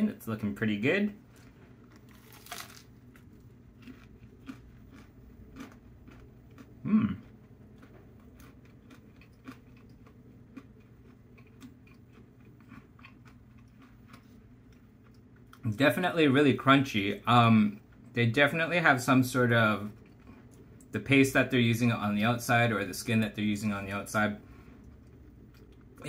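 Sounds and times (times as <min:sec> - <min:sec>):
crisp fried coating crunching: 0:01.3 - 0:14.4
person chewing crunchy food: 0:01.3 - 0:15.7, 0:24.7 - 0:26.0.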